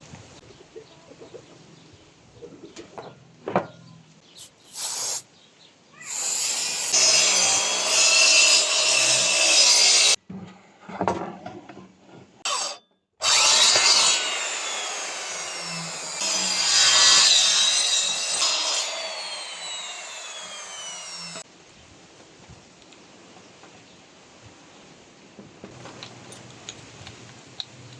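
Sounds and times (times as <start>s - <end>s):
power saw cutting wood: 6.1s - 10.2s, 12.4s - 21.4s.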